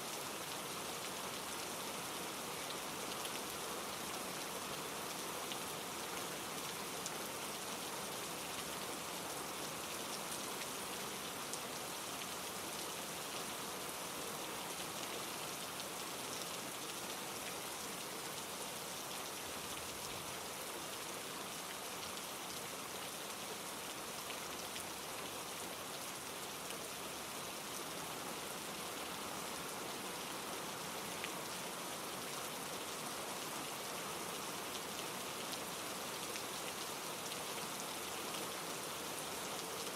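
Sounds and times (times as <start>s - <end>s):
rain falling on leaves: 0.0s - 39.9s
stream rushing over rocks: 0.0s - 39.9s.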